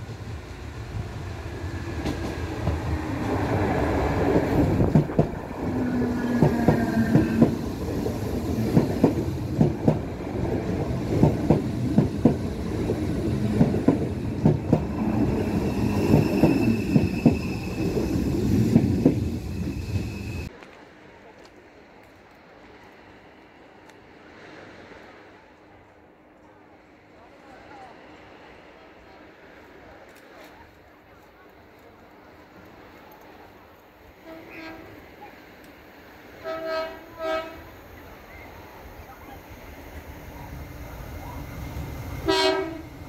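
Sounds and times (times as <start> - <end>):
electric train rumbling past: 0.0 - 20.5, 32.2 - 43.0.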